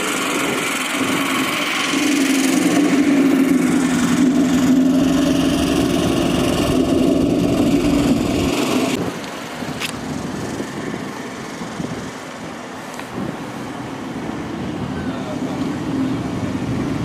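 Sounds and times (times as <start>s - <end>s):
car engine idling: 0.0s - 13.0s
outdoor background noise: 0.0s - 17.0s.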